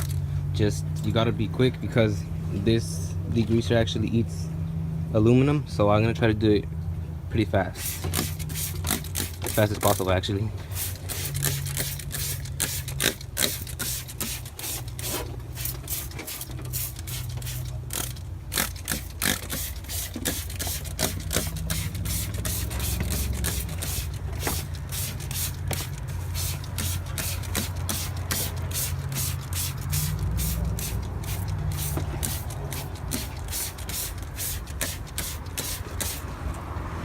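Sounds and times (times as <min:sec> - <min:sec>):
spray bottle squirting: 0:07.8 - 0:36.3
steady low rumble: 0:19.8 - 0:35.4.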